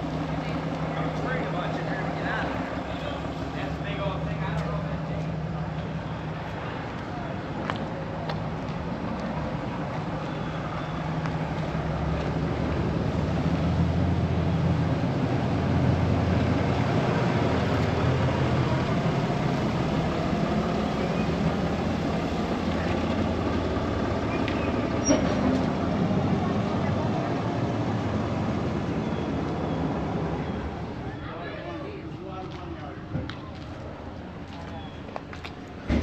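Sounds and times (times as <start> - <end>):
vehicle engine humming: 0.0 - 36.0.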